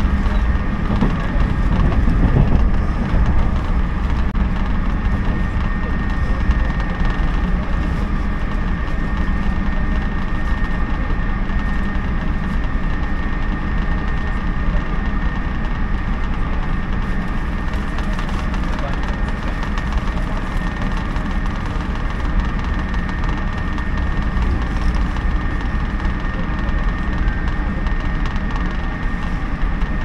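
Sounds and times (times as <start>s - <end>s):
train wheels rumbling: 0.0s - 30.0s.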